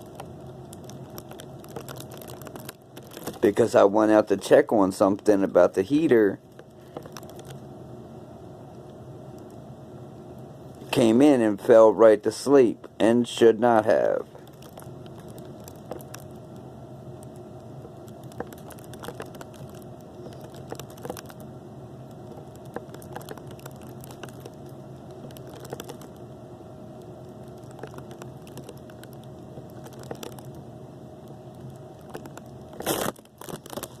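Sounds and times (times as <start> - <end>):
small pops and clicks: 0.0 - 3.5, 6.5 - 7.6, 14.4 - 21.5, 22.1 - 26.2, 27.2 - 30.6, 31.5 - 34.0
low hum: 0.0 - 34.0.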